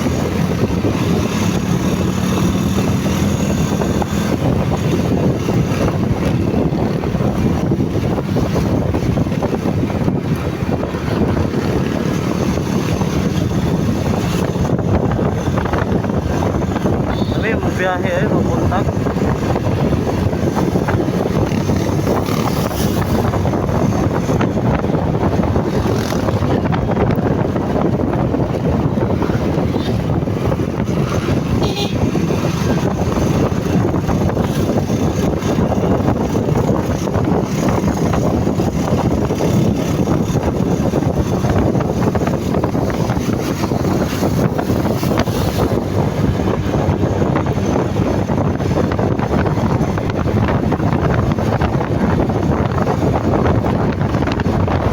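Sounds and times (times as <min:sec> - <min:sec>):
motorcycle engine drone: 0:00.0 - 0:54.9
road noise: 0:00.0 - 0:54.9
wind buffeting microphone: 0:00.0 - 0:54.9.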